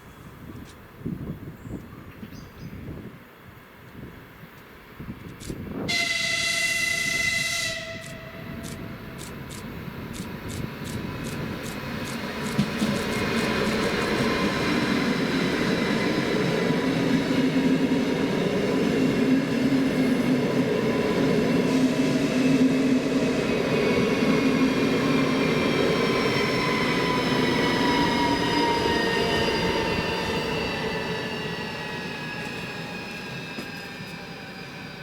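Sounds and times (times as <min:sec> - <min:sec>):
wheel-on-rail rumble: 0:08.5 - 0:15.0.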